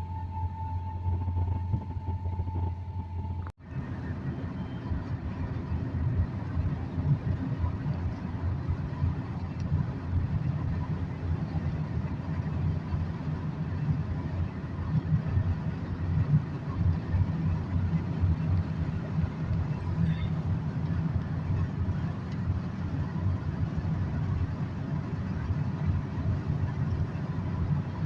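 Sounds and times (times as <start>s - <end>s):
vehicle engine and road rumble: 0.0s - 28.0s.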